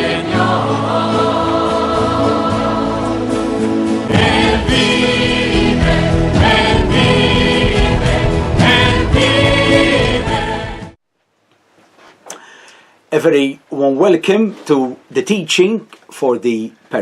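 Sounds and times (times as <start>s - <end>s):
choir singing religious music: 0.0s - 11.0s.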